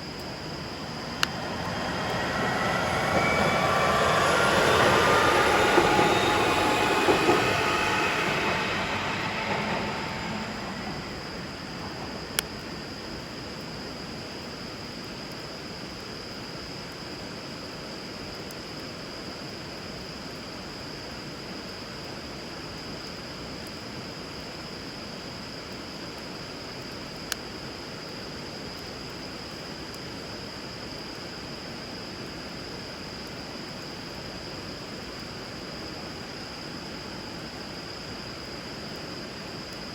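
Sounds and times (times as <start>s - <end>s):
train rumble: 0.0s - 13.4s
train wheels squealing: 0.1s - 12.9s.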